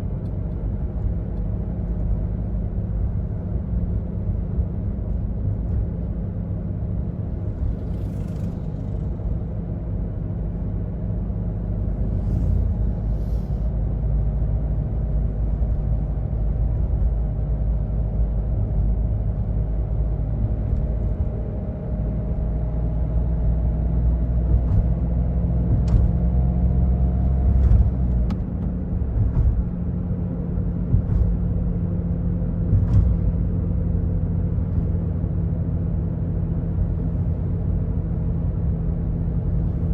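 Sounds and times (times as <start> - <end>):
diesel car engine running: 0.0 - 39.9
tyre and road rumble: 6.7 - 14.2, 19.8 - 39.9.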